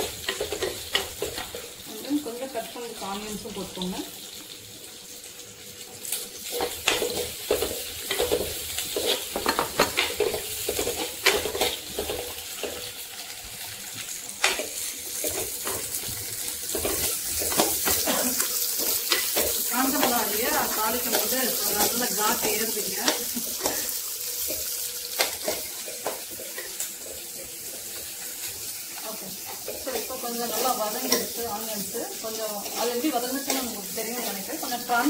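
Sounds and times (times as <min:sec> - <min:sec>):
oil sizzling in clay pot: 0:00.0 - 0:35.0
spoon scraping and knocking pot: 0:06.6 - 0:12.8.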